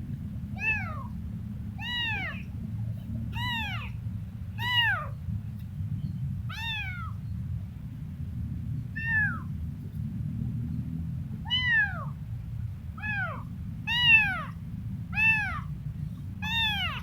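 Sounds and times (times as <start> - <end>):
low background rumble: 0.0 - 17.0
kitten meowing: 0.6 - 1.1, 1.8 - 2.5, 3.3 - 4.0, 4.6 - 5.2, 6.5 - 7.2, 9.0 - 9.5, 11.5 - 12.2, 13.0 - 15.7, 16.4 - 17.0.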